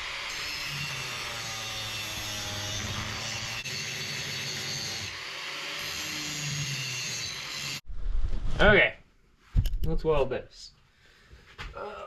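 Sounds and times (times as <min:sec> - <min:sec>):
power tool cutting steel: 0:00.0 - 0:07.8.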